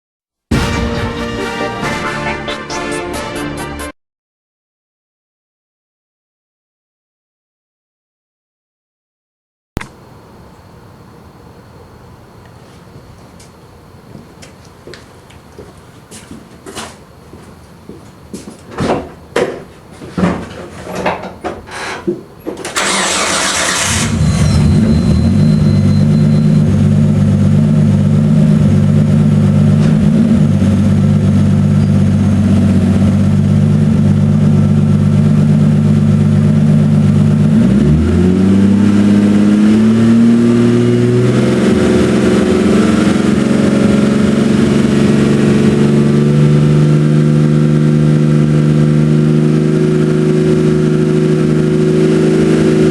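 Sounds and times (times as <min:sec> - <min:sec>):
engine cranking: 0:22.7 - 0:25.1
engine idling: 0:22.8 - 0:37.6.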